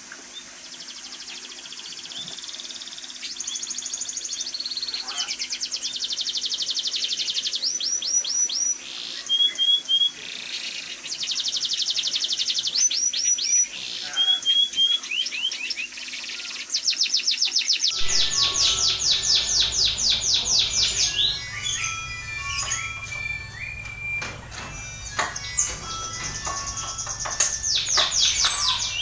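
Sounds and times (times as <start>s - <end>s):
songbird singing: 18.0s - 29.0s
steady hiss: 18.0s - 29.0s.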